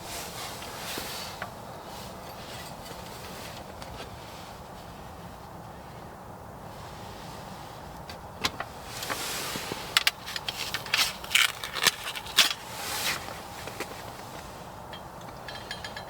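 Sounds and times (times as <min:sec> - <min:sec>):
packaging rustling: 0:10.3 - 0:13.2
hard objects clicking and knocking: 0:15.0 - 0:16.0.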